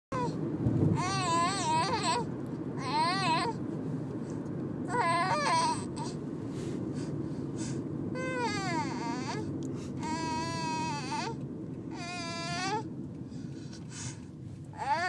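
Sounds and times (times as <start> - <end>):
car noise rumble: 0.1 - 15.0
baby crying: 1.0 - 2.2, 4.9 - 6.1, 8.2 - 12.9, 14.8 - 15.0.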